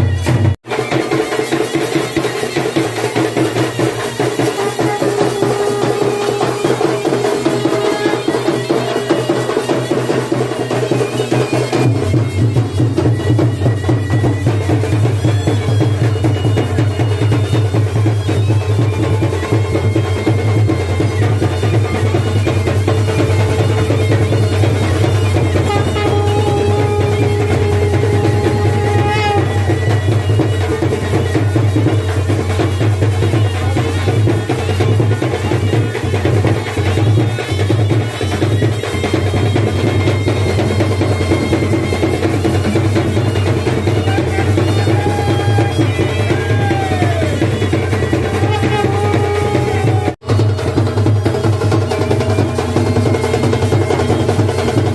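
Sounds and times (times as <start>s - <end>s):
drums beating: 0.0s - 54.9s
reedy wind instrument: 0.0s - 54.9s.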